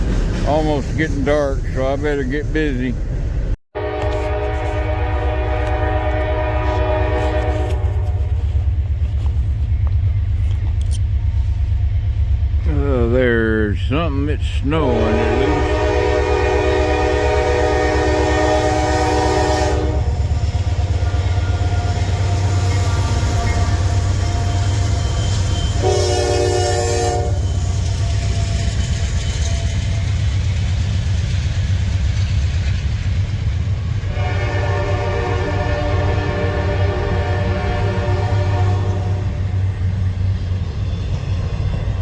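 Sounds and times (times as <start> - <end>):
low engine rumble: 0.0 - 25.5
locomotive air horn blasts: 3.8 - 8.6, 14.9 - 20.3, 21.0 - 27.6, 34.1 - 39.6.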